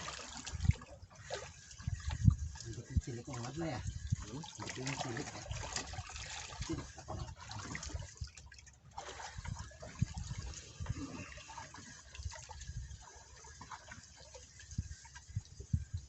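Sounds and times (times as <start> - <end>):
wind buffeting microphone: 0.0 - 4.8, 9.2 - 13.7, 14.6 - 16.0
water splashing and dripping: 0.0 - 16.0.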